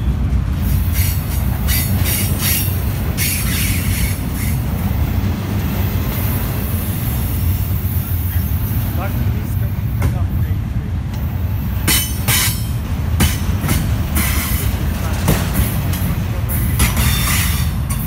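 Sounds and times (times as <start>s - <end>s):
train wheel squeals: 0.0s - 5.1s, 14.2s - 14.8s, 15.5s - 18.0s
freight train rumbling on rails: 0.0s - 18.0s.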